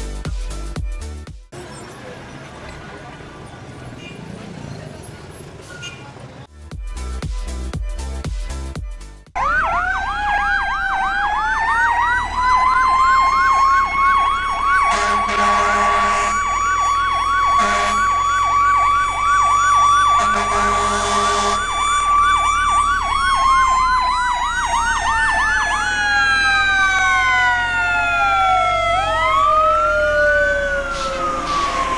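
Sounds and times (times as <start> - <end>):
music with a beat: 0.0 - 1.5, 6.5 - 9.4
emergency vehicle siren: 9.4 - 31.9
horn blasts: 14.9 - 16.4, 17.6 - 18.1, 20.2 - 21.6.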